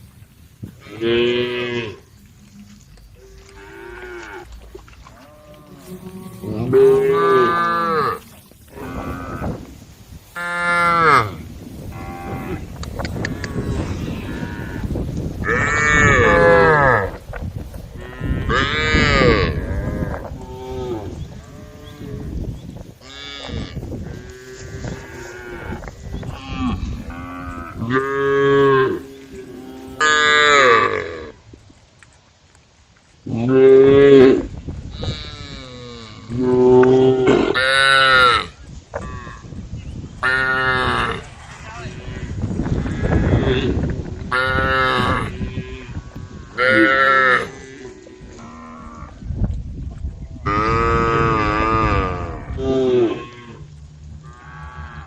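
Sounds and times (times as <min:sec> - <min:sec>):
cows mooing: 0:00.8 - 0:09.8, 0:10.4 - 0:17.2, 0:18.0 - 0:31.4, 0:40.2 - 0:49.2, 0:50.4 - 0:55.0.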